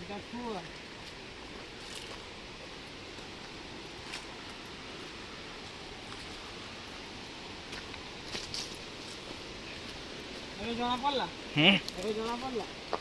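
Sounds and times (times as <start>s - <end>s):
footsteps crunching on dry leaves: 0.0s - 13.0s
steady rushing outdoor noise: 0.0s - 13.0s.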